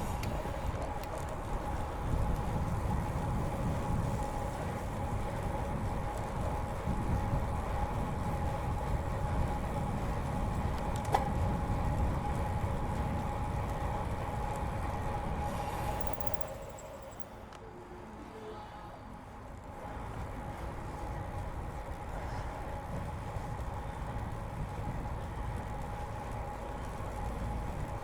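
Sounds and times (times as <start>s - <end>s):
wind rumble on microphone: 0.0s - 17.1s, 18.0s - 28.0s
bicycle tyres rolling: 0.0s - 17.6s, 19.0s - 28.0s
steady hum: 14.3s - 24.4s.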